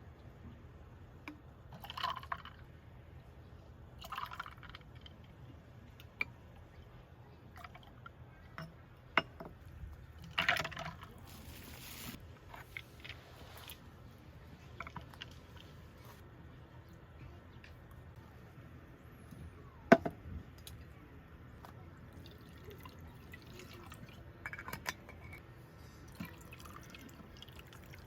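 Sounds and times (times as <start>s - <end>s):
liquid pouring and sloshing: 1.7s - 2.6s, 4.0s - 6.1s, 10.1s - 13.8s, 22.1s - 25.4s, 26.0s - 28.0s.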